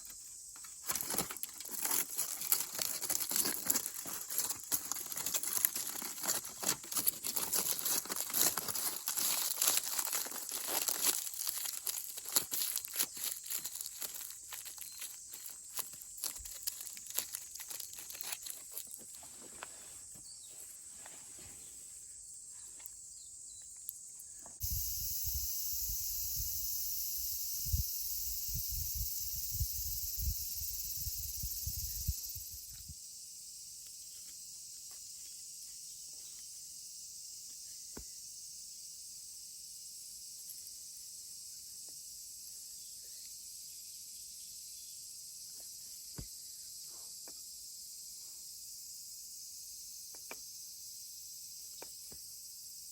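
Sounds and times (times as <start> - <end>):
crackling handling noise: 0.0 - 21.5
insects chirring: 0.0 - 52.9.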